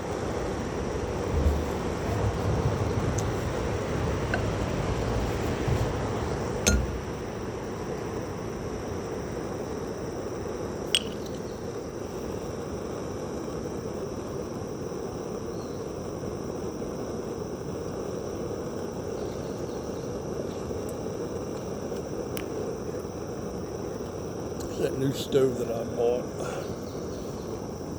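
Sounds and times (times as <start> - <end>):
camp stove hissing: 0.0 - 27.9
sharp metallic clinks: 6.7 - 7.1.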